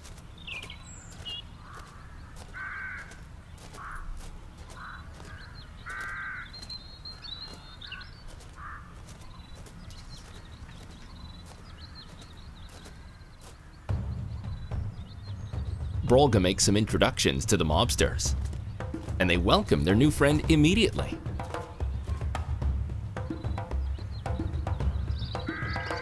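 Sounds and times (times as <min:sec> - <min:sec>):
faint high bird chirps: 0:00.0 - 0:16.4, 0:21.1 - 0:26.0
harsh caw-like bird calls: 0:00.4 - 0:16.0, 0:21.0 - 0:26.0.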